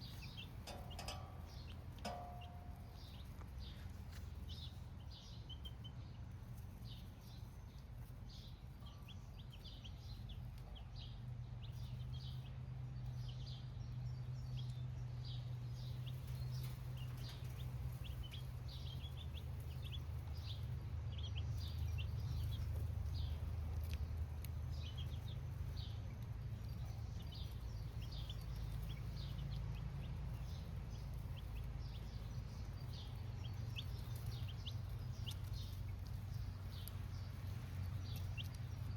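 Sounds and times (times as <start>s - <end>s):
baby chicks cheeping: 0.0s - 38.9s
low steady hum: 0.0s - 38.9s.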